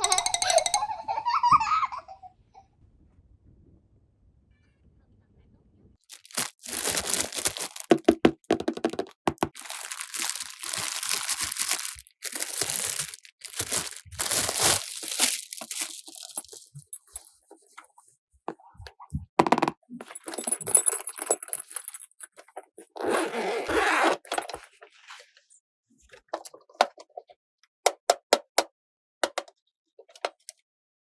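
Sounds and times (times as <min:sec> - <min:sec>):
plastic packaging crinkling: 0:06.1 - 0:17.3.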